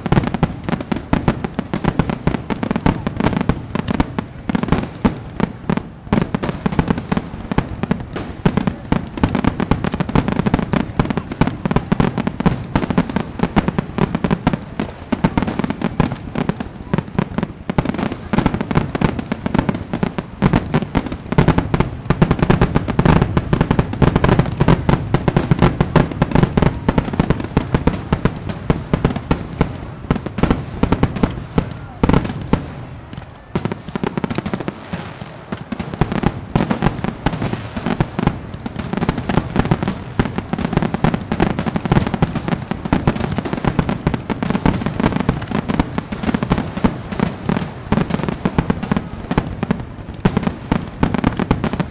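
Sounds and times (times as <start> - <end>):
fireworks bangs and crackles: 0.0 - 51.9.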